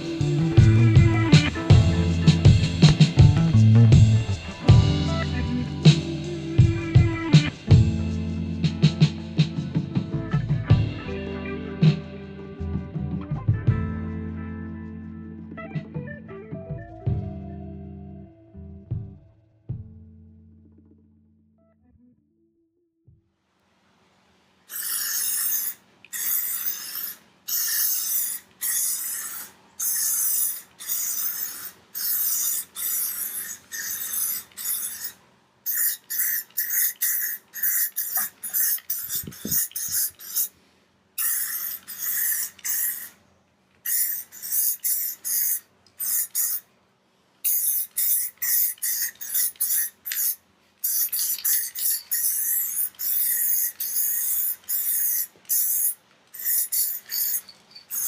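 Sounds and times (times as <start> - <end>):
sandpaper rasping on wood: 24.7 - 40.5.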